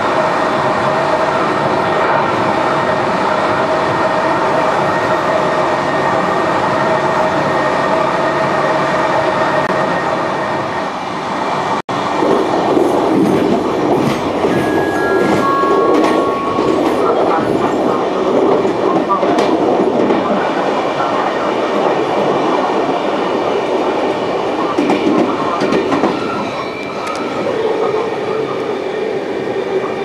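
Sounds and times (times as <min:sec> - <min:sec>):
train rumbling on rails: 0:00.0 - 0:30.0
short high tones: 0:14.5 - 0:17.1.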